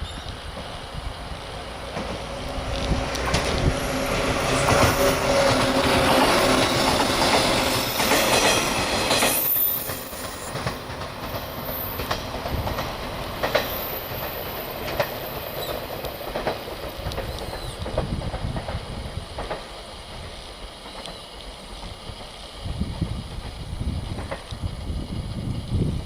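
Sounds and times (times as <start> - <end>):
electric train running past: 0.0 - 26.0
wheel clacks over rail joints: 1.8 - 21.2.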